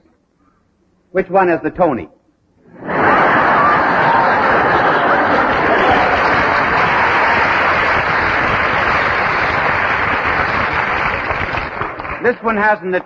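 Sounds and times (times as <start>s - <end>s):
audience applauding: 2.8s - 12.6s.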